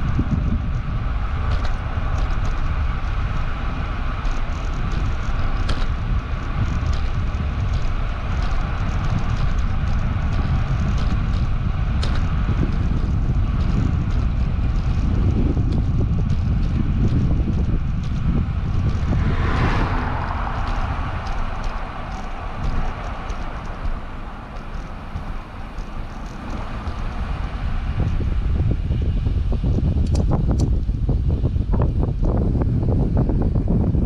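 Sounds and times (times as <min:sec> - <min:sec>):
road noise: 0:00.0 - 0:34.0
wind on microphone: 0:00.0 - 0:34.0
faint ticks: 0:04.2 - 0:28.3.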